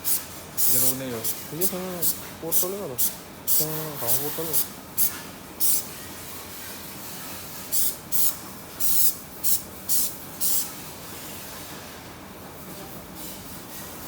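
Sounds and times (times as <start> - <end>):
hissing spray bursts: 0.0 - 6.0, 7.6 - 10.7.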